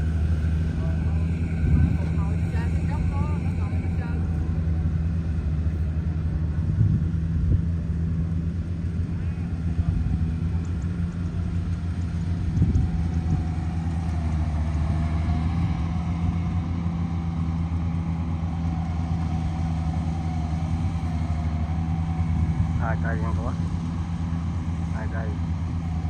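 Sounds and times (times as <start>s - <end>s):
faint wavering whine: 0.0s - 6.3s
diesel engine running: 0.0s - 26.0s.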